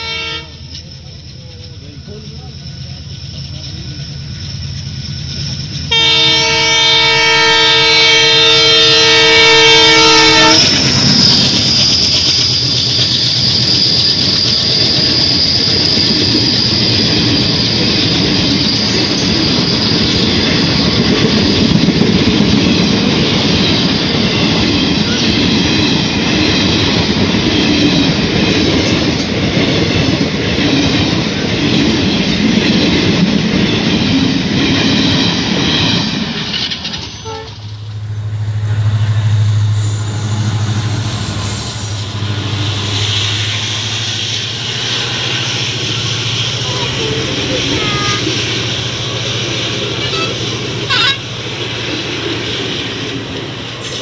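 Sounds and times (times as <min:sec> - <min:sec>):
locomotive horn blast: 0:00.0 - 0:00.7, 0:05.9 - 0:11.1, 0:37.2 - 0:51.5.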